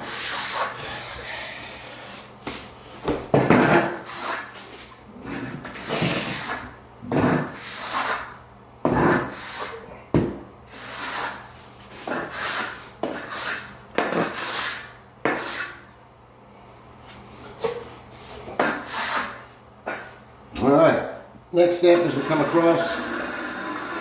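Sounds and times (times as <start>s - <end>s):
float scraping mortar: 21.9s - 24.0s.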